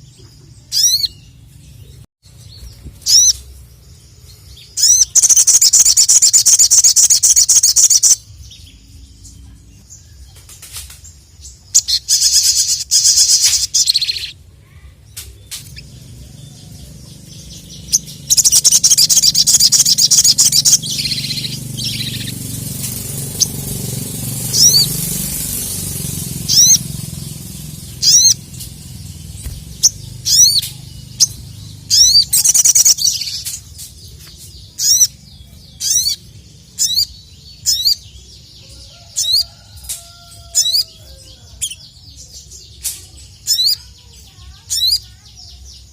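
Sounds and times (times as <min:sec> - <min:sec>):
sunbird chattering trills: 0:00.0 - 0:10.3, 0:11.6 - 0:45.9
low rumble: 0:15.6 - 0:32.4.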